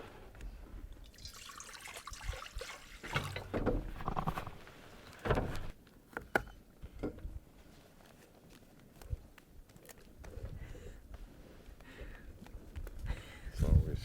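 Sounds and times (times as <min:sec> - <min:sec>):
water splashing and sloshing: 0:01.0 - 0:05.8.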